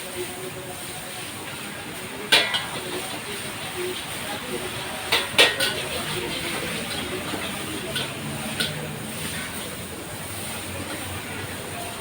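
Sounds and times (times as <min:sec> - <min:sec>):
wok frying hiss: 0:00.0 - 0:12.0
spatula clinking against wok: 0:02.2 - 0:09.8.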